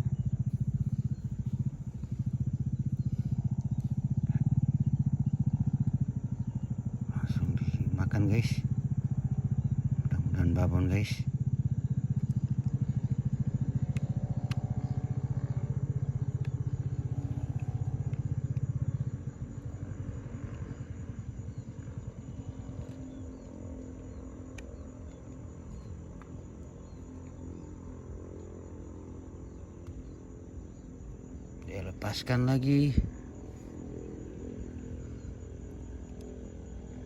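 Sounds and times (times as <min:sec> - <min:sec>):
small engine pulsing hum: 0:00.0 - 0:37.0
faint clicks: 0:13.8 - 0:15.0, 0:22.7 - 0:27.4.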